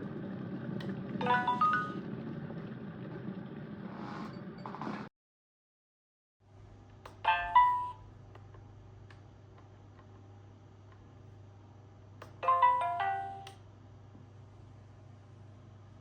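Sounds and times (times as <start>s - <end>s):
kettle chime: 1.2s - 2.1s.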